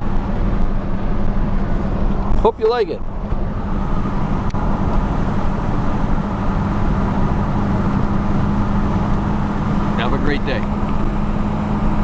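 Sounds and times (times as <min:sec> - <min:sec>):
diesel engine running: 0:00.0 - 0:12.0
road noise: 0:00.0 - 0:12.0.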